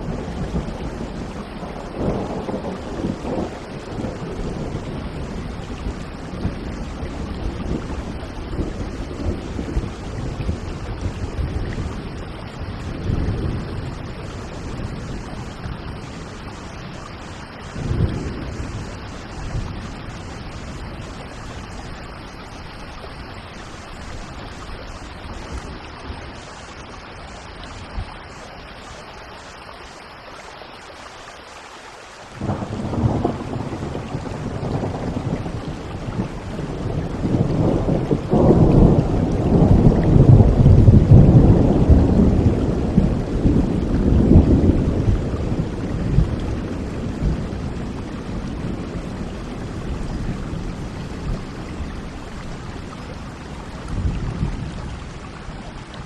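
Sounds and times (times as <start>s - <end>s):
rolling thunder: 0.0s - 22.4s, 32.4s - 55.4s
heavy rain: 0.0s - 56.0s
loud thunderclap: 32.4s - 51.8s.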